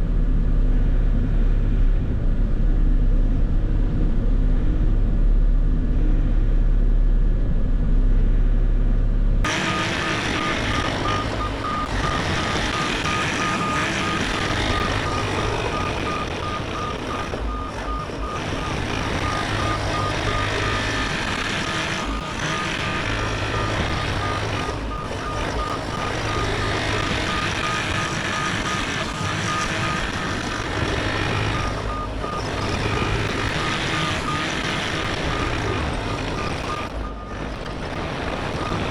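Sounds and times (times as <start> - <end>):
diesel engine under load: 0.0 - 38.9
back-up alarm beeping: 9.5 - 37.5, 38.1 - 38.9.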